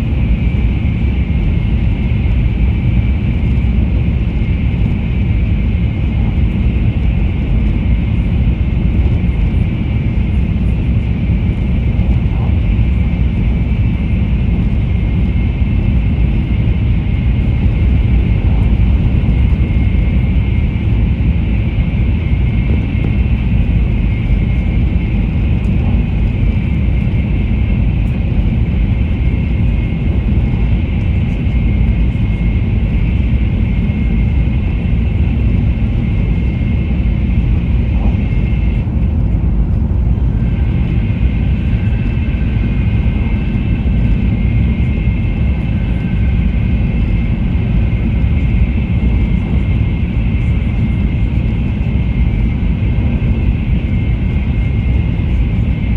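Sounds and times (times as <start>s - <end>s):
high speed train rumbling: 0.0s - 55.9s.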